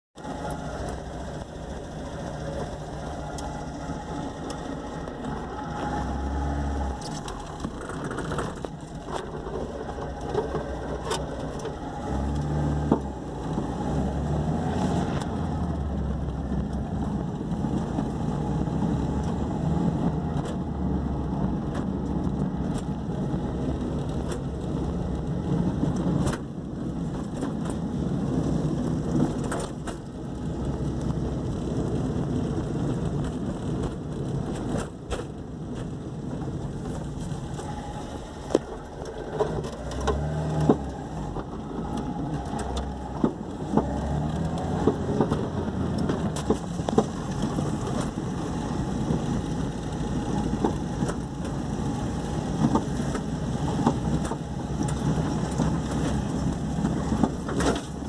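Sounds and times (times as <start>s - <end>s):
car engine running: 0.2s - 58.0s.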